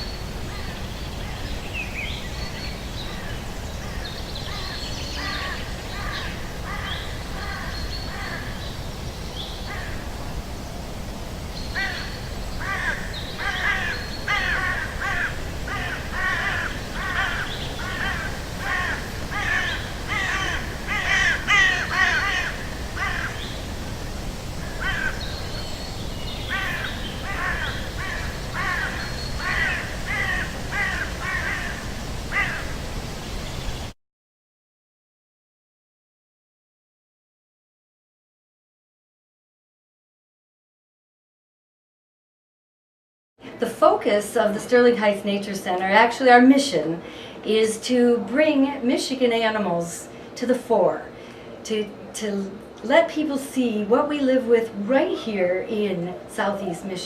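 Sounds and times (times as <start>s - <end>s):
crows cawing: 3.9s - 8.6s, 9.7s - 10.1s, 11.8s - 23.6s, 24.6s - 25.4s, 26.5s - 32.8s.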